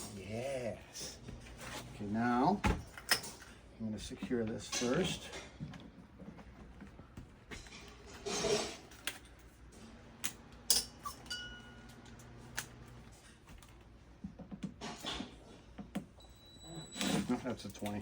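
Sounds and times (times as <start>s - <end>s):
hand tools clinking: 10.7s - 11.9s
short ringing clink: 10.8s - 11.9s.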